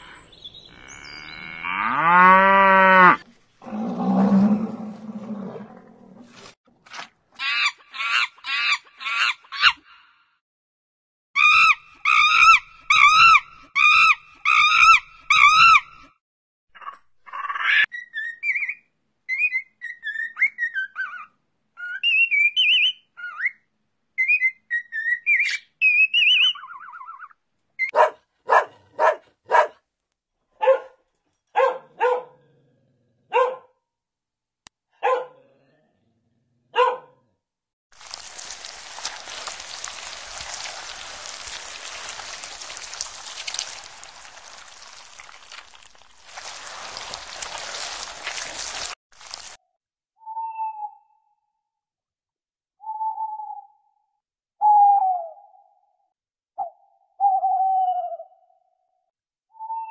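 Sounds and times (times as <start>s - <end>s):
dog barking: 27.9s - 29.8s, 30.6s - 32.5s, 33.3s - 33.8s, 35.0s - 35.4s, 36.7s - 37.2s.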